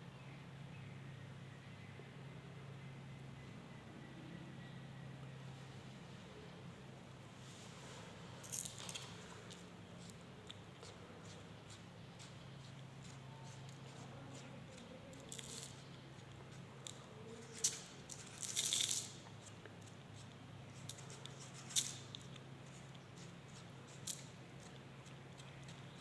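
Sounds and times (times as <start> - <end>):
steady low hum: 0.0 - 26.0
scraping rustle: 7.3 - 20.0.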